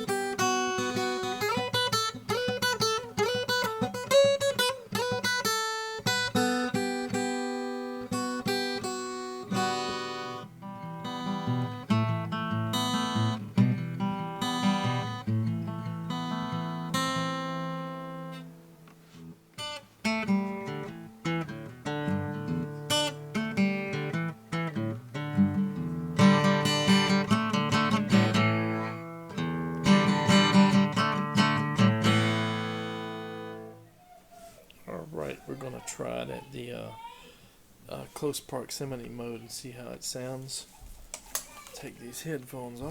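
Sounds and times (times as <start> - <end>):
fingerstyle acoustic guitar: 0.0 - 33.8.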